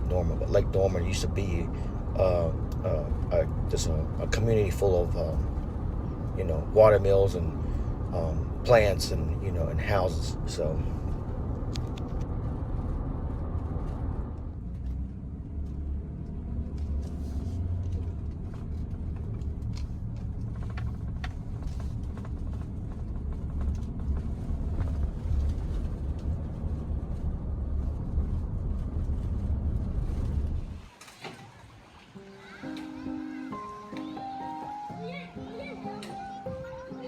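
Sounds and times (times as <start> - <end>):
steady low rumble: 0.0 - 14.7, 17.4 - 30.9.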